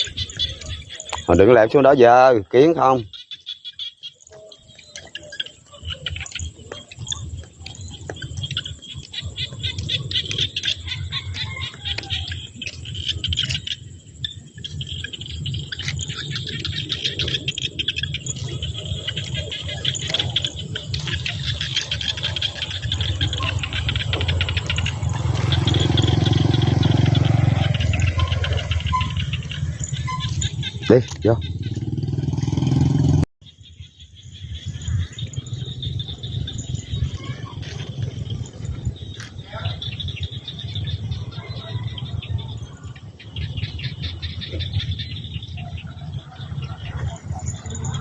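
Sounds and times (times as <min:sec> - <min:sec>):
birds chirping: 0:00.0 - 0:48.0
insects trilling: 0:00.0 - 0:48.0
steady low rumble: 0:44.6 - 0:48.0.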